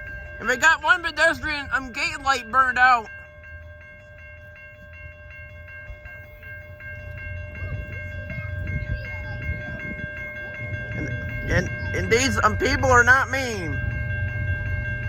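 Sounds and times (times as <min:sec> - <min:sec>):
crossing warning bell ringing: 0:00.0 - 0:15.0
train rumbling: 0:00.0 - 0:15.0.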